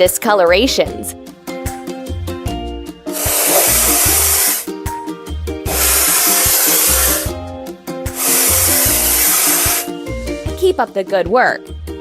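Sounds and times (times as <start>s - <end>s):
background music: 0.0s - 12.0s
aerosol spray hissing: 3.1s - 4.7s, 5.7s - 7.4s, 8.1s - 10.0s.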